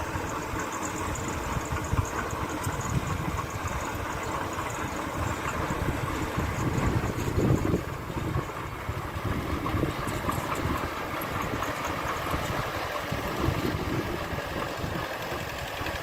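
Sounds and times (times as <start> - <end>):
diesel engine running at low revs: 0.0 - 16.0.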